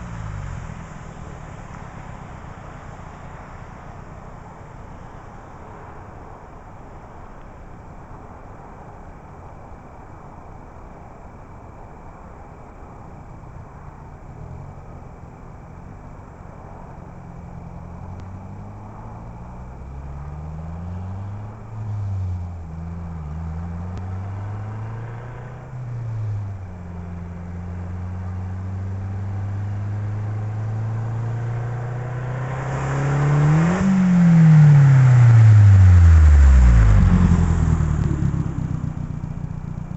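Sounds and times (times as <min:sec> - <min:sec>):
car engine accelerating hard: 0:00.0 - 0:05.1, 0:16.8 - 0:39.9.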